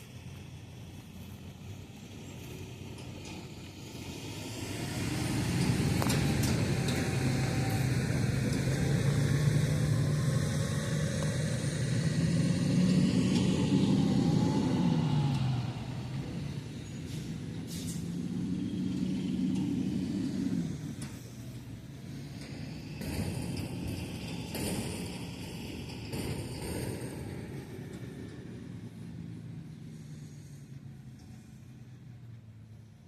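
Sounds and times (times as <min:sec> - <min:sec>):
large vehicle engine running: 0:00.0 - 0:33.0.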